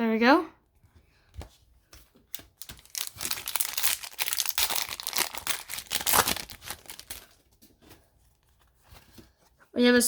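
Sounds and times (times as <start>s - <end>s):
foil wrapper crinkling and tearing: 2.4s - 7.4s.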